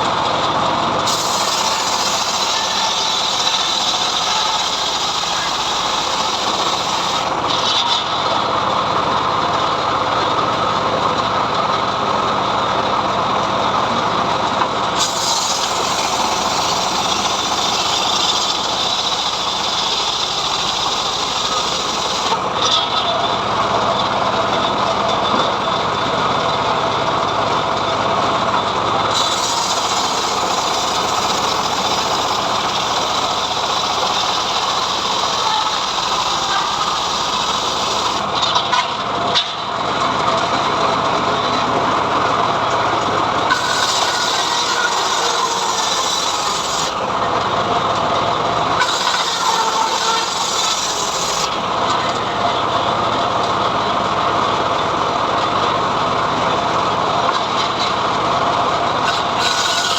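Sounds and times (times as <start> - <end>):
band saw cutting log: 0.8 - 8.4, 12.8 - 23.3, 29.1 - 38.9, 43.2 - 52.3, 57.2 - 59.9.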